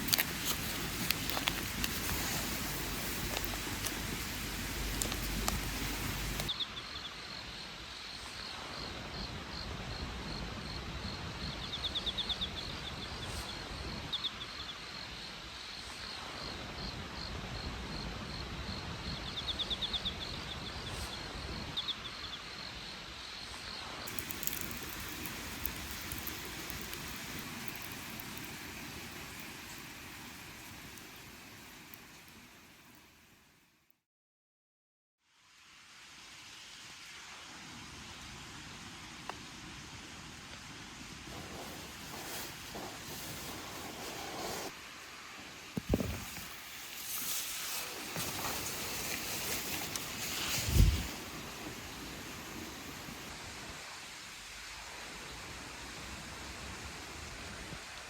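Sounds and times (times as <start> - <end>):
outdoor hiss: 0.0 - 18.3, 20.9 - 33.9, 35.2 - 58.0
crickets chirping: 24.1 - 32.6.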